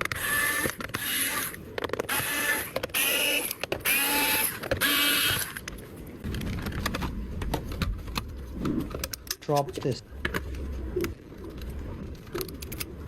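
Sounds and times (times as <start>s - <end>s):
screwdriver whirring: 0.0s - 5.7s.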